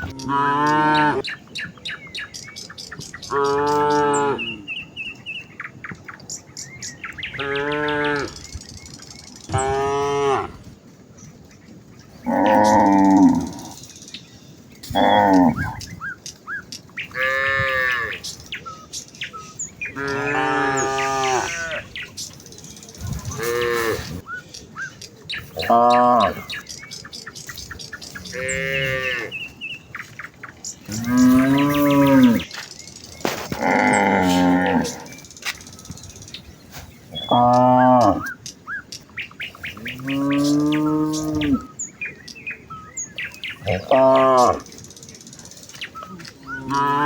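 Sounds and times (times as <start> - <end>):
cattle mooing: 0.0 - 1.2, 12.2 - 13.7, 20.0 - 21.8, 23.3 - 24.2, 30.9 - 32.5, 33.5 - 35.1, 46.5 - 47.0.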